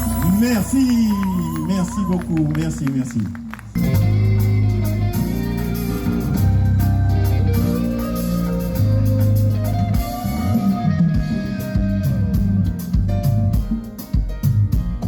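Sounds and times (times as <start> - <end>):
bass line: 0.0 - 13.8
keyboard chords: 0.0 - 15.0
guitar: 3.5 - 15.0.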